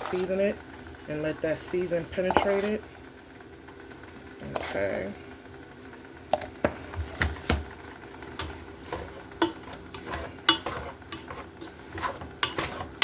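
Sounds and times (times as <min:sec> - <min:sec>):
utensil scraping a pot: 0:00.0 - 0:02.9, 0:04.4 - 0:05.2, 0:08.2 - 0:13.0.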